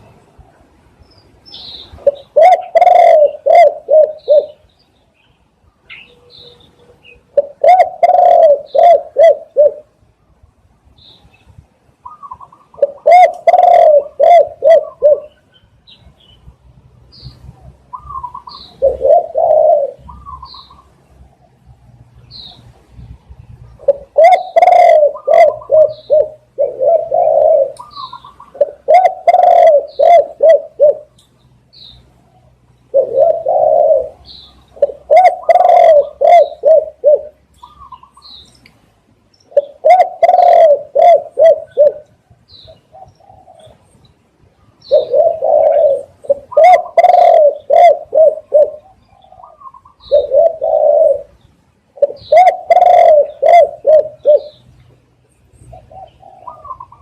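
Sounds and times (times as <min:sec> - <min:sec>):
dove cooing: 0:01.6 - 0:04.6, 0:05.9 - 0:10.0, 0:12.0 - 0:15.4, 0:17.4 - 0:21.5, 0:23.7 - 0:31.2, 0:32.3 - 0:38.3, 0:39.5 - 0:43.9, 0:44.8 - 0:54.7, 0:55.6 - 0:57.0
small bird chirping: 0:17.1 - 0:19.0, 0:20.0 - 0:21.0, 0:27.6 - 0:30.2, 0:37.5 - 0:40.6.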